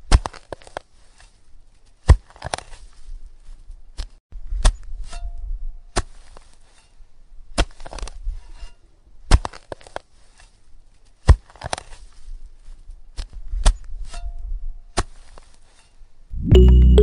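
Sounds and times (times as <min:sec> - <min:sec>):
metal tool scraping damp sand: 0:06.0 - 0:07.0, 0:08.3 - 0:08.8, 0:15.0 - 0:16.0
sand rustling: 0:09.8 - 0:14.1, 0:15.0 - 0:16.0.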